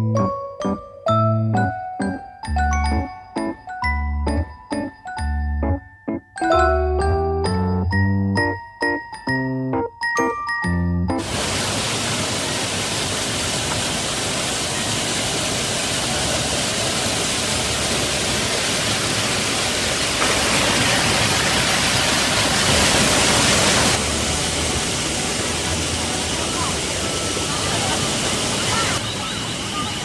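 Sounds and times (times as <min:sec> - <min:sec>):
waterfall rushing: 0:11.2 - 0:30.0.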